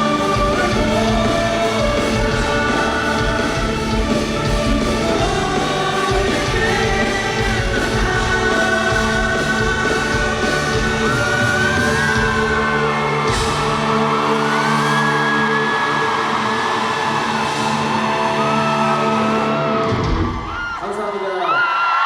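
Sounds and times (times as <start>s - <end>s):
person singing: 0.0s - 19.9s
guitars: 0.0s - 20.8s
drums: 0.0s - 21.7s
audience screaming: 0.0s - 22.0s.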